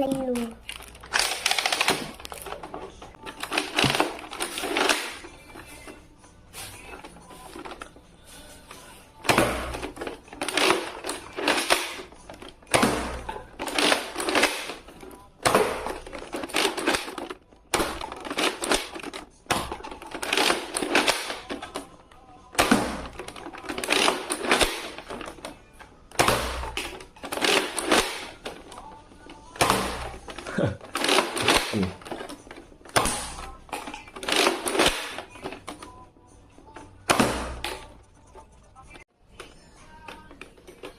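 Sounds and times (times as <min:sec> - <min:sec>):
toy blaster plastic clacks and rattles: 0:00.1 - 0:05.3, 0:09.7 - 0:21.9, 0:22.6 - 0:25.6, 0:26.7 - 0:29.0, 0:29.8 - 0:35.9.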